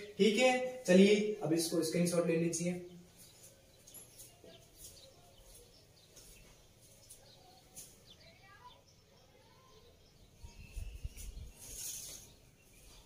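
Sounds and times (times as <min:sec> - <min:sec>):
faint bird chirps: 0:02.8 - 0:13.0.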